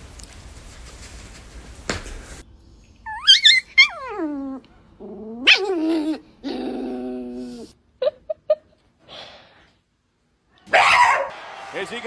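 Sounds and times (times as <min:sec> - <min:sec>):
dog yelping and whining: 0:03.0 - 0:07.7.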